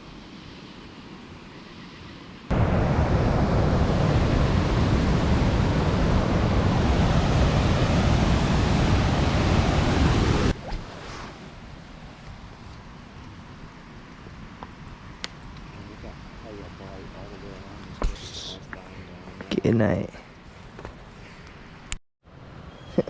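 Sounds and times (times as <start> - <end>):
waterfall rushing: 2.5 - 10.6.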